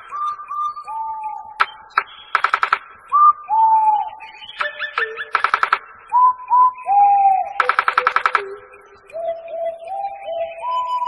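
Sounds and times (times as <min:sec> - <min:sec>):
bird whistled notes: 0:00.0 - 0:11.0
bird rattling trills: 0:02.3 - 0:02.8, 0:04.6 - 0:05.8, 0:07.6 - 0:08.6.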